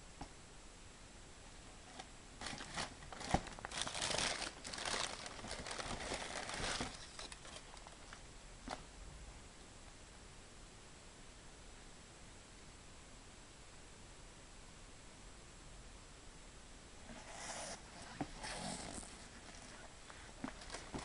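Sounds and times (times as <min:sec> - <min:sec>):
packaging crinkling and rustling: 0:01.9 - 0:08.2, 0:18.0 - 0:21.0.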